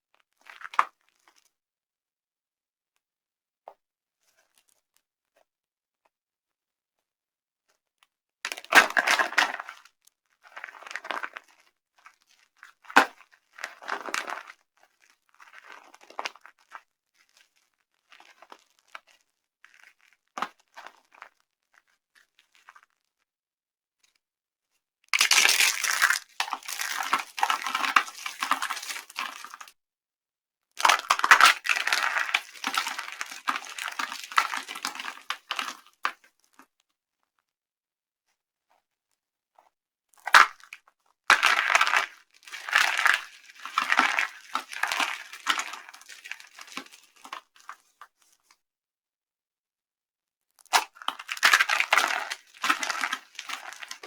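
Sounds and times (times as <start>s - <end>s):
soap crunching by hand: 8.5s - 9.8s, 25.2s - 29.8s, 30.8s - 36.2s, 40.2s - 47.8s, 50.6s - 54.0s.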